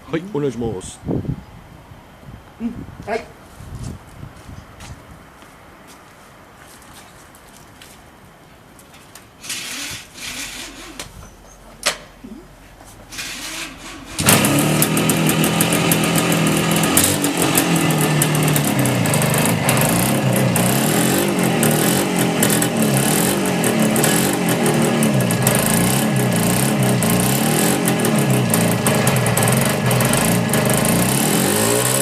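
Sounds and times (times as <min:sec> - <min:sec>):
two-stroke engine revving: 0:09.4 - 0:11.2, 0:13.1 - 0:32.0
motorcycle kick start: 0:09.4 - 0:12.1, 0:12.8 - 0:32.0.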